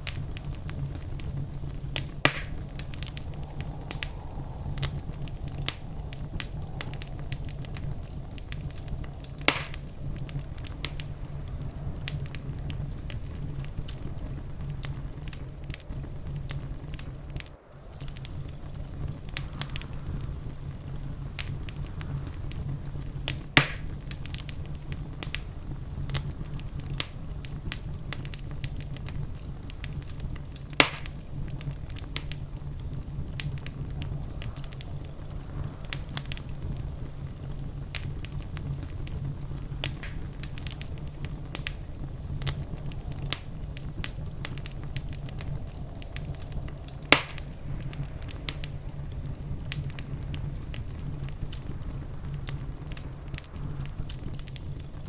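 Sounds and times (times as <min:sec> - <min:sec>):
fire crackling: 0:00.0 - 0:55.0
low rumble: 0:00.0 - 0:55.0
loud sharp pops: 0:02.0 - 0:03.3, 0:09.4 - 0:11.1, 0:30.8 - 0:31.2, 0:47.1 - 0:48.6.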